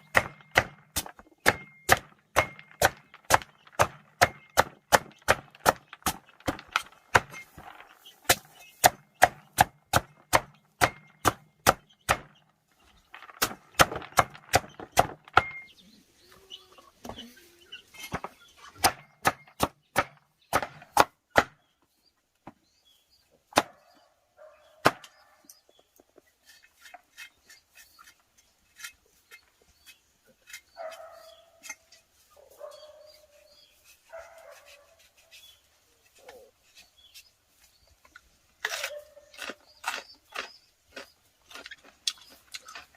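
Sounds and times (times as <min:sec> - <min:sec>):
blade chopping strikes: 0:00.0 - 0:07.5, 0:08.3 - 0:12.4.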